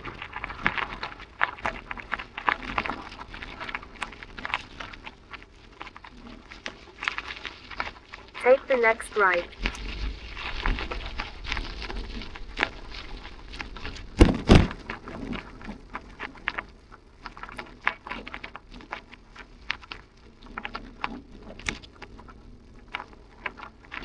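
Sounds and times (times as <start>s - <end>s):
bicycle rattling over rough surface: 0.0s - 8.4s, 9.5s - 24.0s
loud knocks: 14.2s - 14.8s.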